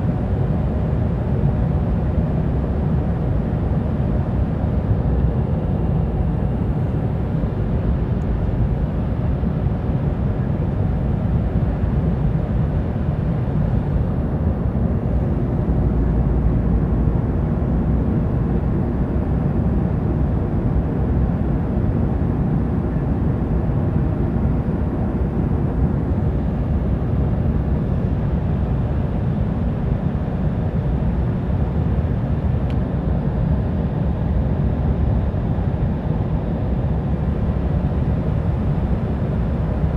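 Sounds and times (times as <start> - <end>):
airliner cabin rumble: 31.2 - 39.9.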